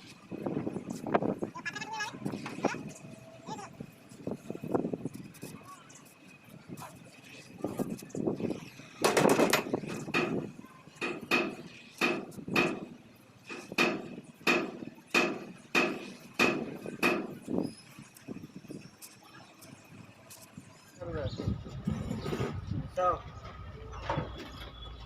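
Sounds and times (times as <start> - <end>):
hammer ringing on sheet metal: 11.0 - 12.9, 13.5 - 17.4.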